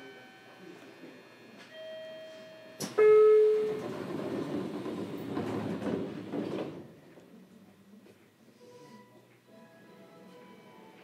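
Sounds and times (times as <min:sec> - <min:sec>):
electric train running: 0:02.6 - 0:06.8.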